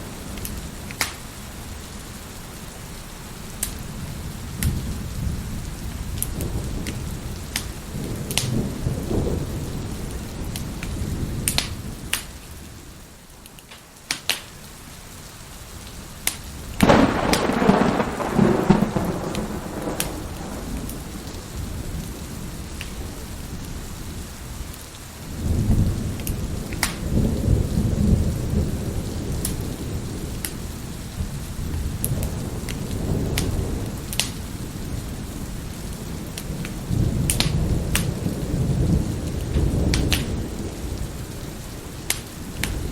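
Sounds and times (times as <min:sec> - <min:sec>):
crackling wood fire: 0:00.0 - 0:42.9
steady rain: 0:00.0 - 0:42.9
rumble of thunder: 0:04.0 - 0:12.2, 0:16.6 - 0:23.9, 0:25.3 - 0:42.9
thunderclap: 0:16.8 - 0:22.2, 0:31.2 - 0:34.6, 0:36.2 - 0:41.2.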